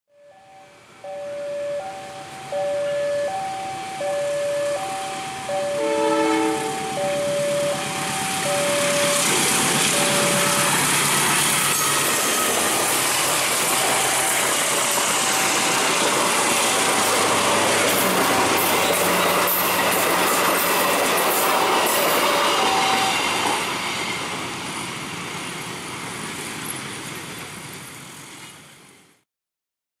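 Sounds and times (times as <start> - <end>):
two-note crossing chime: 0.1 - 10.9
train wheels clattering: 8.1 - 28.0.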